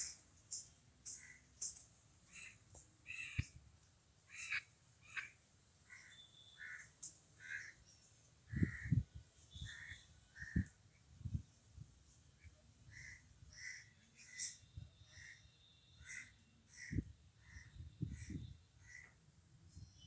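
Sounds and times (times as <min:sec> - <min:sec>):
birds cawing: 0:04.3 - 0:07.8, 0:08.5 - 0:09.0, 0:09.6 - 0:10.7, 0:12.9 - 0:19.2.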